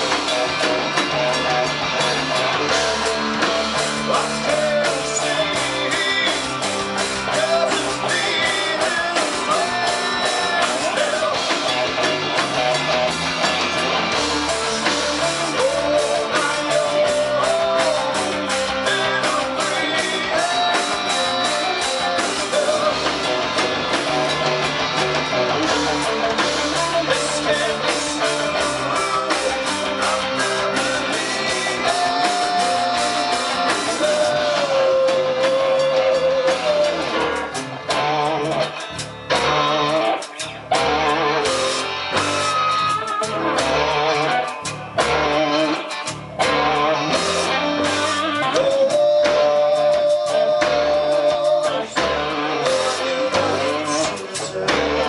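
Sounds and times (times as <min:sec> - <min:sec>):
bass: 0:00.0 - 0:55.0
guitar melody: 0:00.0 - 0:55.0
steady drum beat: 0:00.0 - 0:55.0.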